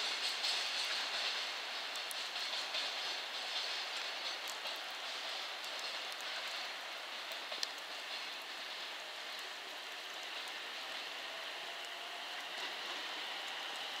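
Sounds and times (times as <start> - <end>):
freight train wagons rolling: 0.0 - 14.0
faint clicks: 7.3 - 8.5.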